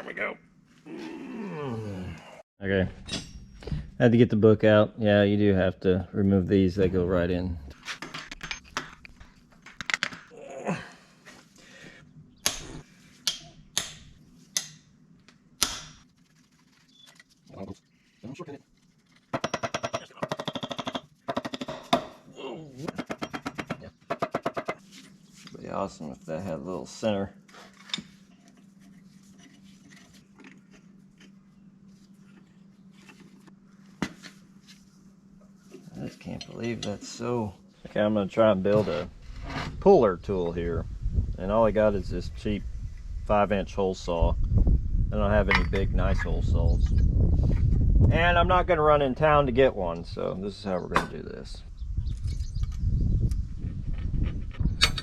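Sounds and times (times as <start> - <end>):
steady low hum: 24.8 - 55.0.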